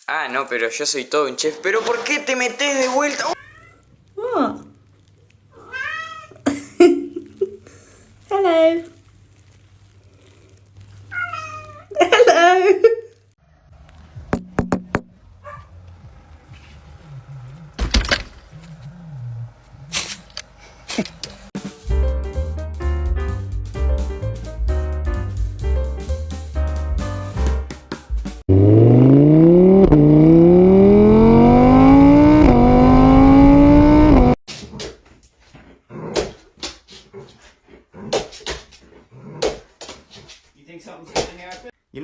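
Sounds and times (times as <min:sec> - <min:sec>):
car engine accelerating hard: 0:13.4 - 0:14.4, 0:15.1 - 0:17.8, 0:28.5 - 0:34.4
dog barking: 0:15.4 - 0:15.8.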